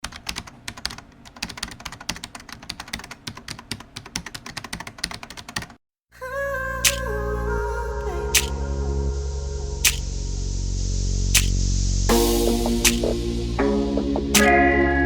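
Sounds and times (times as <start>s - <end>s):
fast typing on a keyboard: 0.0s - 5.8s
music: 6.9s - 15.0s.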